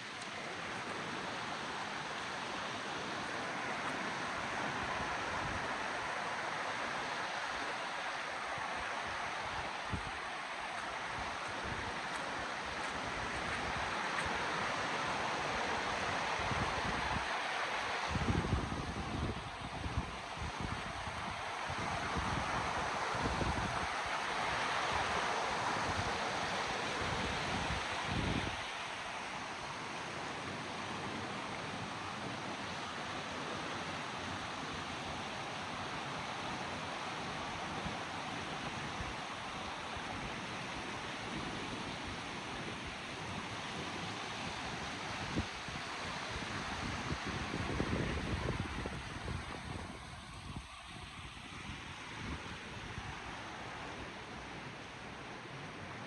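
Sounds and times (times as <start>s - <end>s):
river water rushing: 0.0s - 56.0s
wind buffeting microphone: 18.0s - 24.1s, 42.6s - 53.3s.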